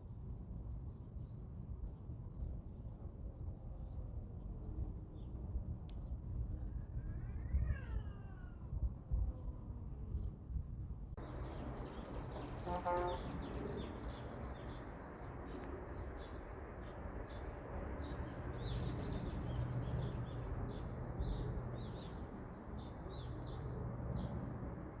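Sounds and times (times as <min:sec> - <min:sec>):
steady low rumble: 0:10.9 - 0:25.0
lower-pitched bird call: 0:11.2 - 0:16.4
small birds chirping: 0:11.2 - 0:24.8.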